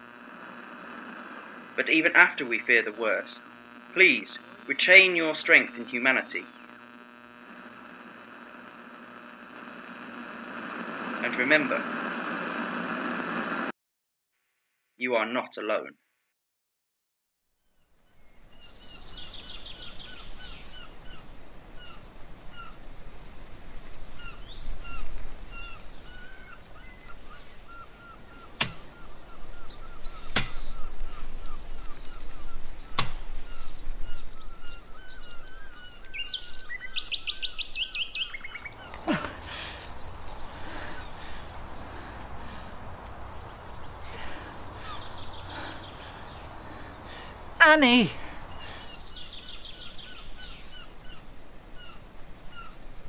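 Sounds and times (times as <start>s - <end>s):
songbirds singing and chirping: 18.0s - 53.0s
sharp clicks: 25.8s - 34.3s.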